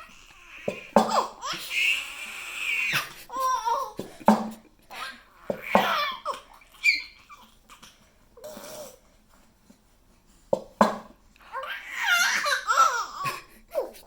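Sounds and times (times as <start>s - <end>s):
baby squealing: 0.0s - 4.0s, 4.9s - 7.6s, 11.5s - 13.9s
baby babbling: 0.0s - 4.1s, 4.9s - 9.0s, 11.5s - 13.9s
baby laughing: 0.0s - 8.0s, 11.6s - 14.0s.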